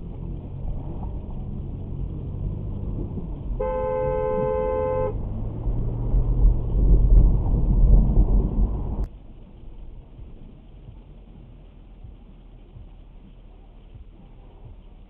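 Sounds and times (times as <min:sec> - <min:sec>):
heavy low rumble: 0:00.0 - 0:15.0
road and engine noise: 0:00.0 - 0:15.0
car horn blast: 0:03.6 - 0:05.2.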